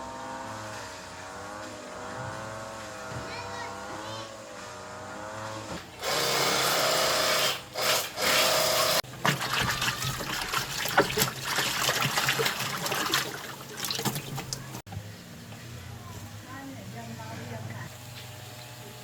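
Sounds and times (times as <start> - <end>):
water running: 9.0 - 14.9
water splashing and trickling: 9.0 - 15.6.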